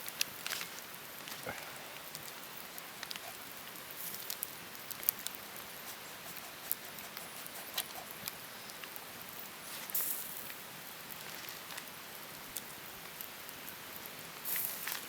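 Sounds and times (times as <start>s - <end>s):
rain pattering: 0.0s - 9.5s, 10.4s - 15.0s.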